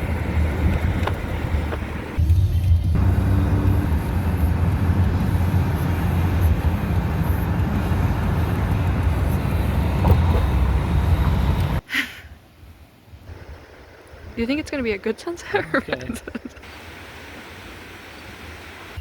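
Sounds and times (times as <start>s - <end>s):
road and wind noise in car: 0.0s - 11.9s.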